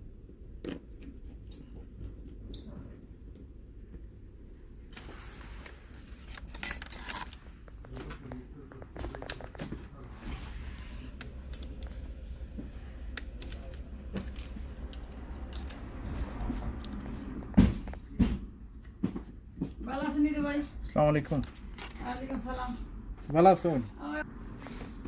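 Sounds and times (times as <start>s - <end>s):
steady low hum: 0.0s - 25.0s
metal parts clinking: 6.2s - 7.4s, 10.7s - 11.9s.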